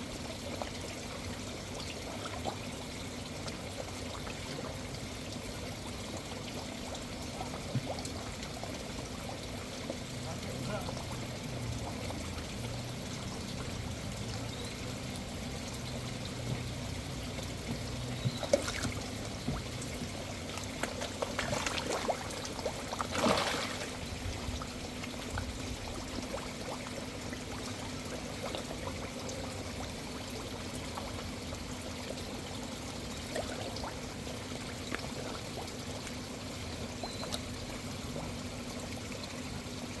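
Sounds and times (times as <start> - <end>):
low steady hum: 0.0 - 40.0
water pouring into a pond: 0.0 - 40.0
short splashes: 18.2 - 19.1, 20.8 - 24.0.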